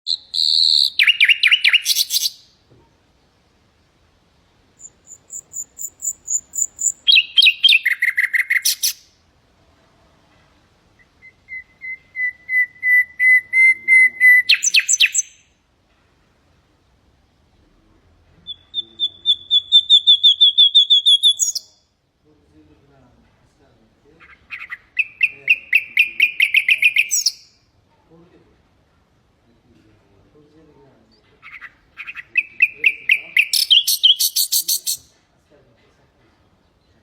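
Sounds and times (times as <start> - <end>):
nightingale singing: 0.0 - 2.6, 4.7 - 9.2, 10.9 - 15.6, 18.4 - 22.0, 24.2 - 27.6, 31.1 - 35.1.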